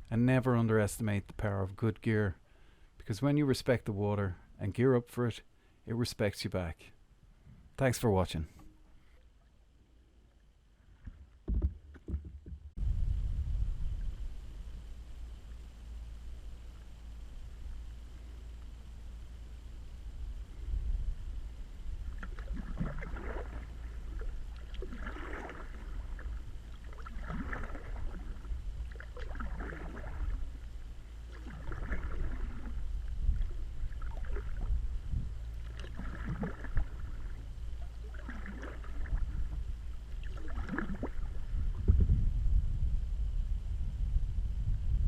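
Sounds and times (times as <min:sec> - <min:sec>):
low rumble: 0:12.7 - 0:45.0
paddle splashing in water: 0:22.0 - 0:34.8, 0:35.5 - 0:41.9.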